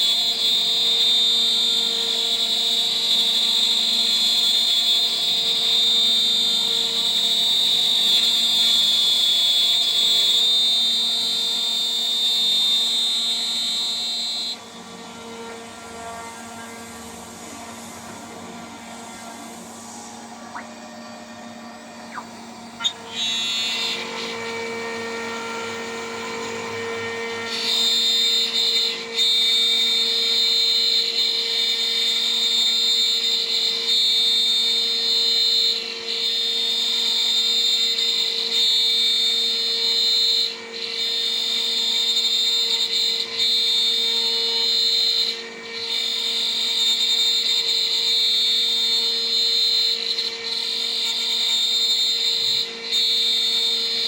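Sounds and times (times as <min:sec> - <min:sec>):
cutter milling whine: 0:00.0 - 0:54.0
spindle humming: 0:16.2 - 0:27.2.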